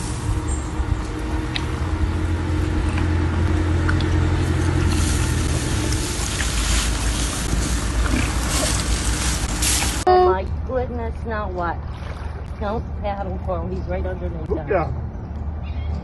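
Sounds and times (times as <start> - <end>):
boat motor running: 0.0 - 10.8
hiss of water and wind: 3.8 - 10.1.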